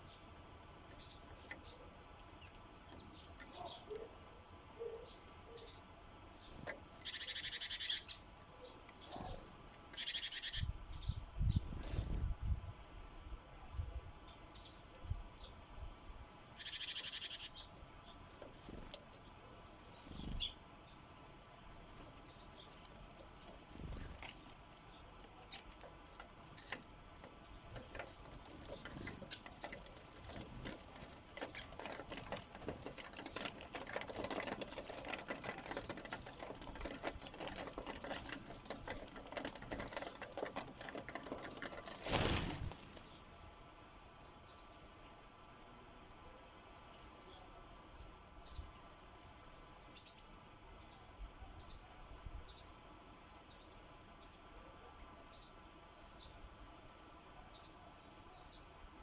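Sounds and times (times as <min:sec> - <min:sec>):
birds pecking seed: 0:00.0 - 0:12.7, 0:14.2 - 0:44.6.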